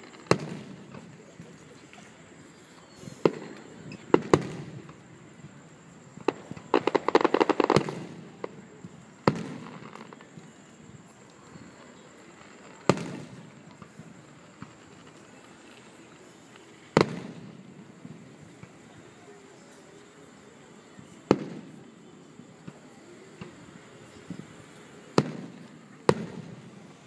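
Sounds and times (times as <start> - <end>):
crackling pops: 0.0 - 5.1, 6.1 - 18.9, 21.2 - 21.8, 25.1 - 26.7
fireworks bursting: 0.0 - 27.0.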